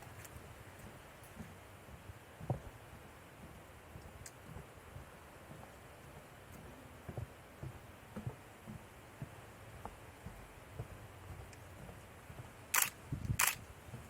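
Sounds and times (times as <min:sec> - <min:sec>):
soft low thuds: 0:00.0 - 0:14.0
camera shutter click: 0:12.7 - 0:13.6.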